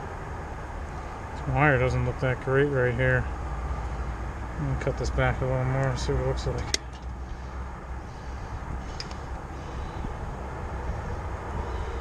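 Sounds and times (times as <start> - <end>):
outdoor background rumble: 0.0 - 12.0
sharp click: 6.6 - 7.1.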